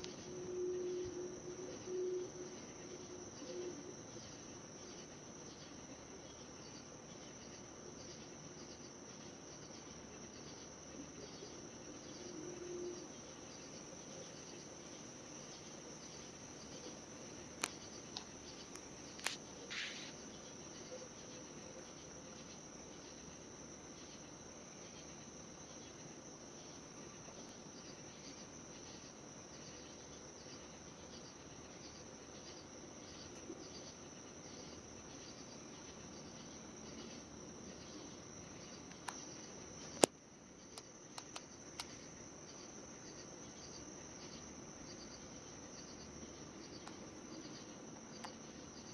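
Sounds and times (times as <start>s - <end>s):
crickets chirping: 0.0s - 48.9s
sharp clicks: 40.8s - 42.0s.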